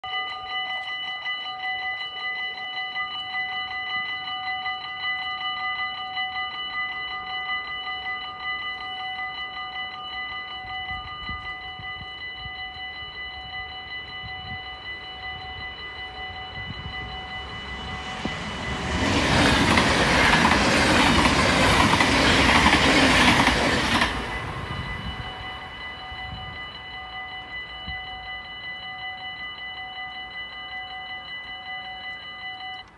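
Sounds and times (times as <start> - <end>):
level crossing bell ringing: 0.0 - 32.9
train passing: 6.6 - 32.9.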